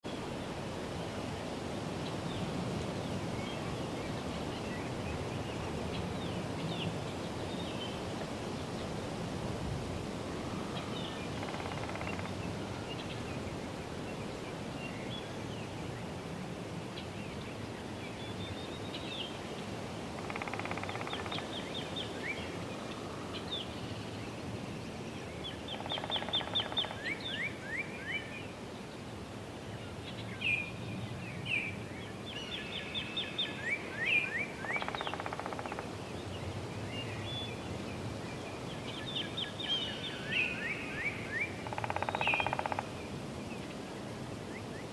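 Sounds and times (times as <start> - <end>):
wind: 0.0 - 44.9
woodpecker hammering on tree: 11.4 - 12.4, 20.2 - 21.5, 25.8 - 27.0, 34.8 - 35.9, 41.6 - 42.9
songbirds chirping: 20.8 - 44.9.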